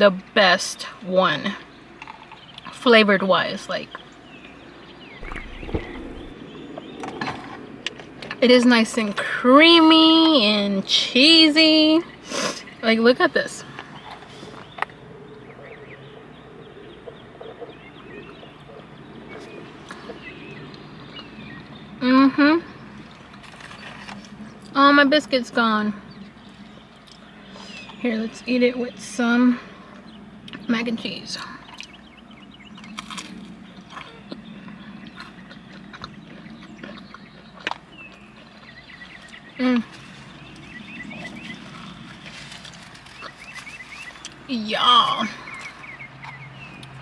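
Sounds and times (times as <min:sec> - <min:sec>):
small birds chirping: 0:04.0 - 0:06.9, 0:31.6 - 0:47.0
faint chewing clicks: 0:05.2 - 0:06.3, 0:32.8 - 0:39.4, 0:46.2 - 0:47.0
person chewing wet food: 0:05.2 - 0:06.3
steady low hum: 0:05.2 - 0:06.4.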